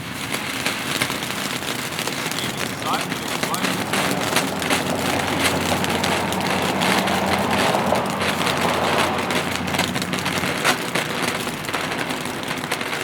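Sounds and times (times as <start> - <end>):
firework hissing and crackling: 0.0 - 13.0.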